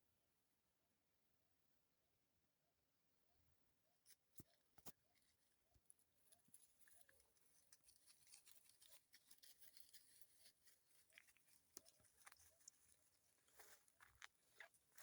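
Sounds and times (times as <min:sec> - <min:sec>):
faint crackles and clicks: 0:04.1 - 0:15.0.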